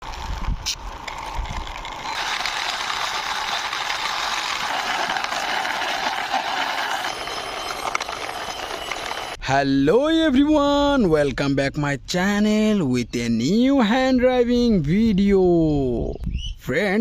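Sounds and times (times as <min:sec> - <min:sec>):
toy vehicle wheels rattling: 0:00.0 - 0:09.4.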